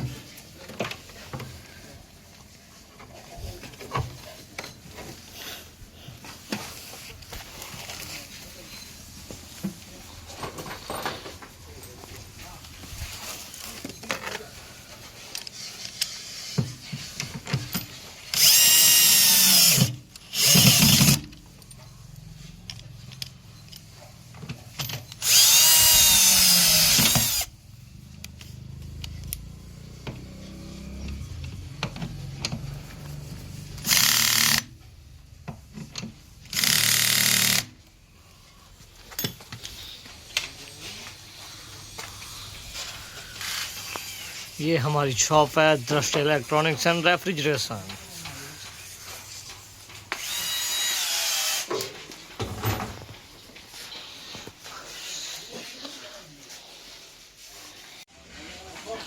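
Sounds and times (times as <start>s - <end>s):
clatter of handled parts: 6.1s - 27.5s, 38.9s - 41.2s
electric drill-driver whining: 18.3s - 21.2s, 25.2s - 27.5s, 33.8s - 34.7s, 36.5s - 37.7s, 43.3s - 44.6s, 50.1s - 51.8s.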